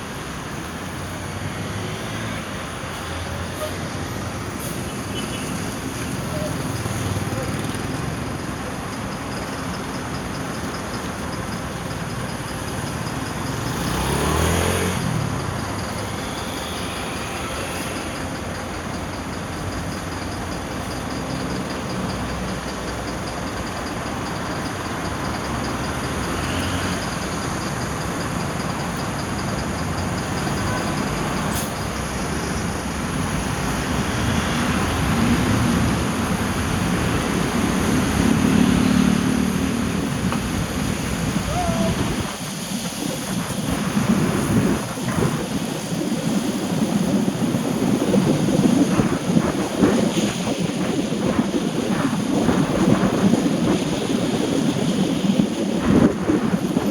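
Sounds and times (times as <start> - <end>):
city traffic noise: 0.0 - 56.9
vehicle passing by: 13.5 - 15.8, 33.5 - 42.3.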